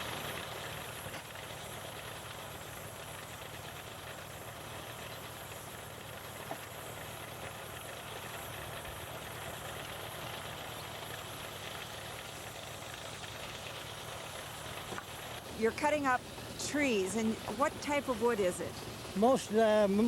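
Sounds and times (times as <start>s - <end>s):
steam engine running: 0.0s - 20.0s.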